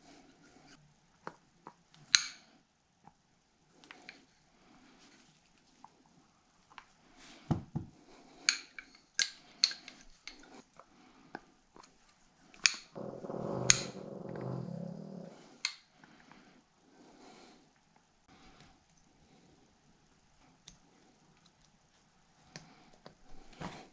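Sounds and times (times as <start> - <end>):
low grumbling sound: 13.0 - 15.6.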